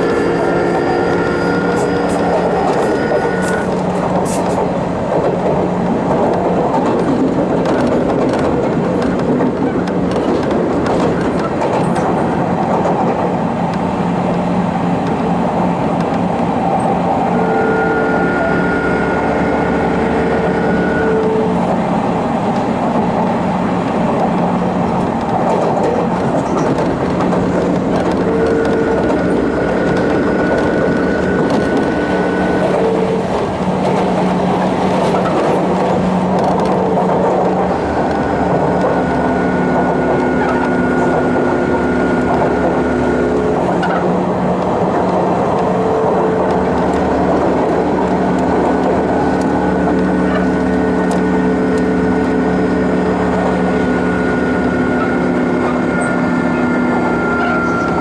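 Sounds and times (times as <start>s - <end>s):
train wheels and motors rumbling: 0.0s - 58.0s
steady higher tone: 53.8s - 58.0s.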